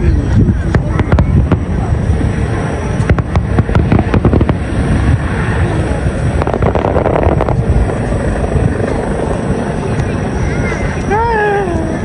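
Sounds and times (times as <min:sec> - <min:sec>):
firework shell bursts rumbling: 0:00.3 - 0:11.4
sharp crackling pops: 0:02.9 - 0:05.3, 0:06.3 - 0:10.2.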